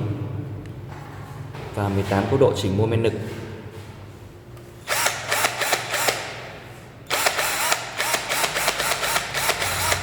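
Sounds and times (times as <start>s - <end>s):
cordless drill whirring in spurts: 4.9s - 6.3s, 7.1s - 10.0s.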